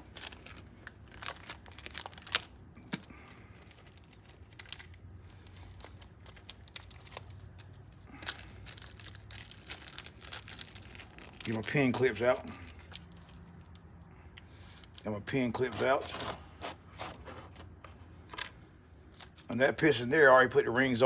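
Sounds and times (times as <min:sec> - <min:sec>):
packaging crinkling and tearing: 0:00.0 - 0:13.9, 0:19.1 - 0:19.5.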